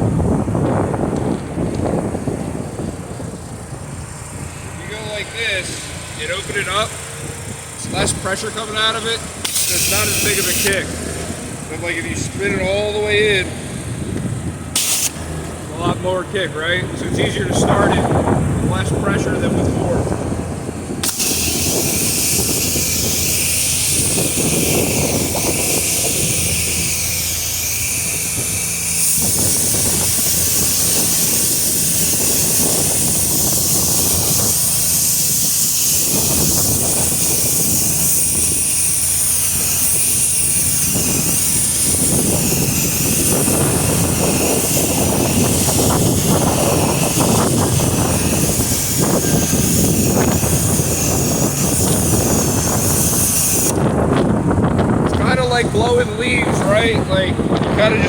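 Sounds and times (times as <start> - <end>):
pressure washer engine drone: 0.0 - 58.0
water spray hissing: 6.3 - 12.9, 14.7 - 15.5, 21.0 - 53.8.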